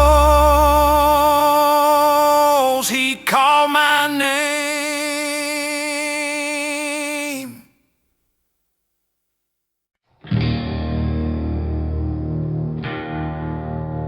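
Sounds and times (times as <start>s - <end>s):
deep bass: 0.0s - 1.4s
singer holding note with vibrato: 0.0s - 1.6s.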